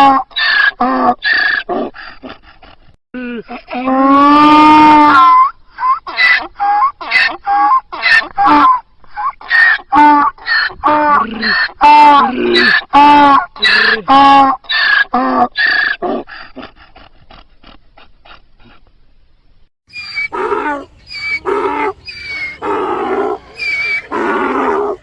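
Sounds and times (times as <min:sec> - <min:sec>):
donkey braying: 0:19.9 - 0:25.0.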